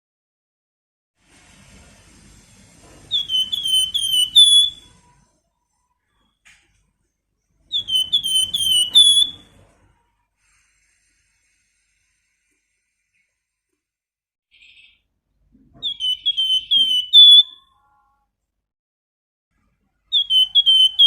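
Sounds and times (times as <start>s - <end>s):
songbird whistling: 3.1s - 5.0s, 7.7s - 9.5s, 15.8s - 17.7s, 20.1s - 21.0s.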